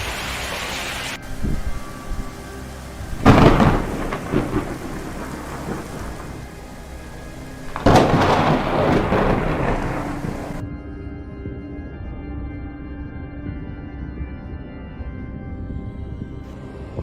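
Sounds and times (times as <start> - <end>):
steady rain: 0.0 - 10.6
thunder rumbling: 0.0 - 10.6.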